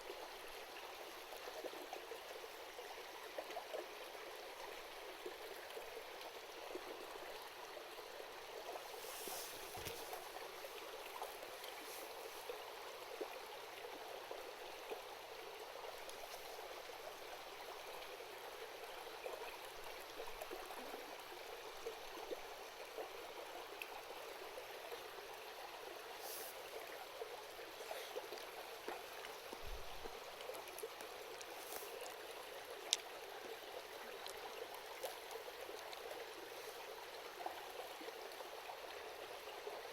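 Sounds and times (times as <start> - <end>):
small stream babbling: 0.0 - 39.9.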